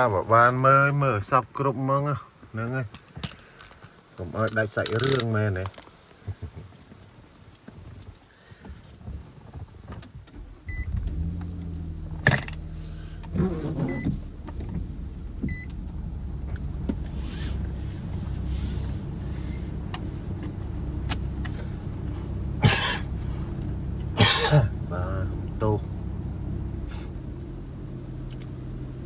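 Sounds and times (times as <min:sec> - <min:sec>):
car engine idling: 0:08.8 - 0:29.0.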